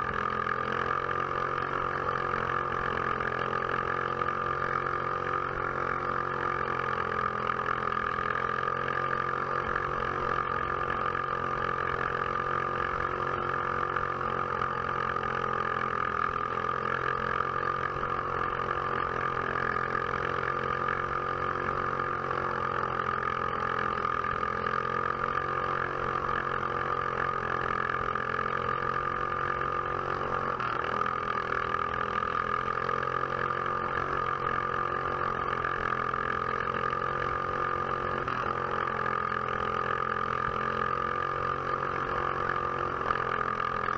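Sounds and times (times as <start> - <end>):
kart engine running: 0.0 - 43.9.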